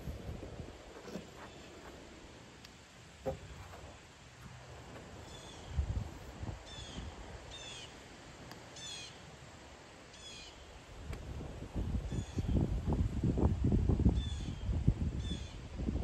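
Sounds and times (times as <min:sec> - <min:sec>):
bird calling: 0:08.8 - 0:09.2.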